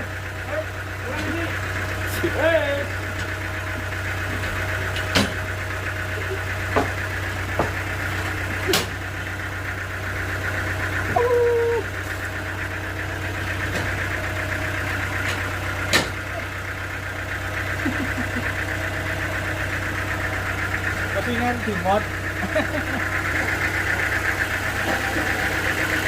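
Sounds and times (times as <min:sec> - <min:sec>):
sawmill engine idling: 0:00.0 - 0:26.0
sharp knocks: 0:15.9 - 0:16.2.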